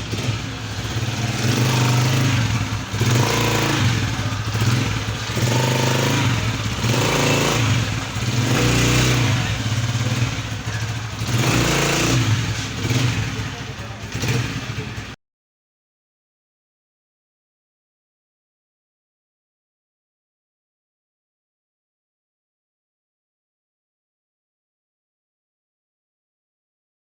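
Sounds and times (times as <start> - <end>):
motorcycle engine revving: 0.0 - 15.2.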